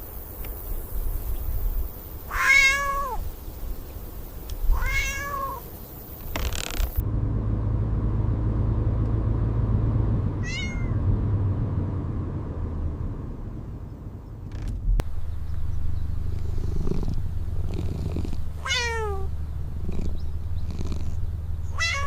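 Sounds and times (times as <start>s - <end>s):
cat meowing: 2.3s - 3.2s, 4.7s - 5.6s, 10.4s - 11.0s, 18.6s - 19.3s, 21.7s - 22.0s
low steady hum: 7.0s - 22.0s.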